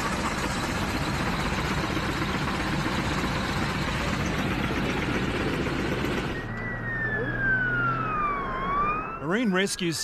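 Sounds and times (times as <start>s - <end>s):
aircraft cabin roar and rumble: 0.0s - 7.3s.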